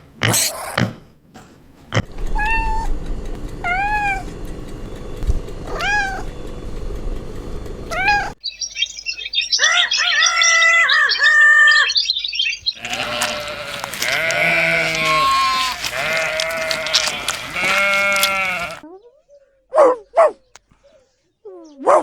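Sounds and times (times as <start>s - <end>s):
cat meowing: 5.7s - 6.2s, 12.8s - 18.8s
animal calls: 7.9s - 18.9s
dense high chirping: 8.4s - 18.8s.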